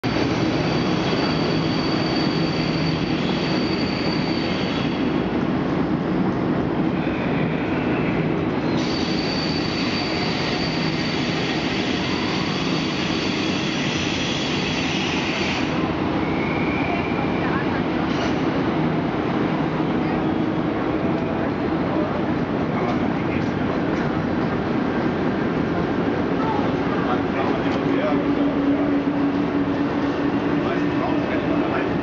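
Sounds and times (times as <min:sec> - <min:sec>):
train rumbling: 0:00.0 - 0:32.0
high wheel squeal: 0:00.4 - 0:05.2, 0:08.6 - 0:17.3.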